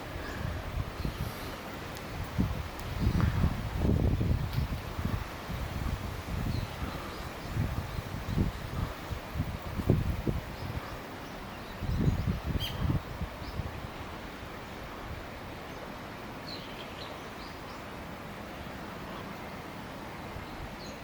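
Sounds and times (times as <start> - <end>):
wind buffeting microphone: 0.0 - 15.5
steady background hiss: 0.0 - 21.0
faint high bird chirps: 11.6 - 13.6.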